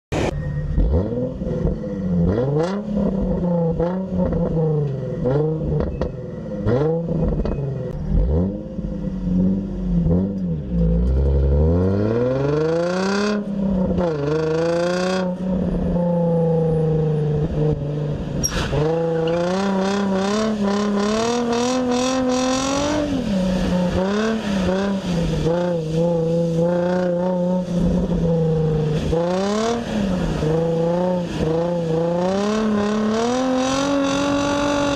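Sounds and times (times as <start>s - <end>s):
car engine revving: 0.1s - 34.9s.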